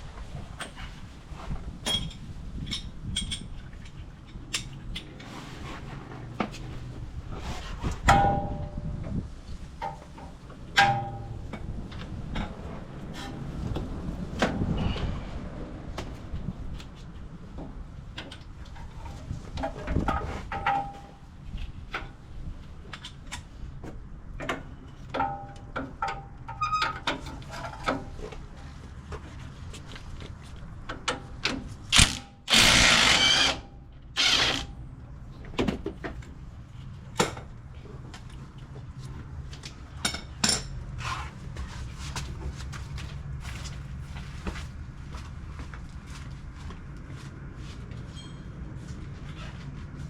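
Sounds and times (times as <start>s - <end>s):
power tool bursts: 31.9s - 34.7s.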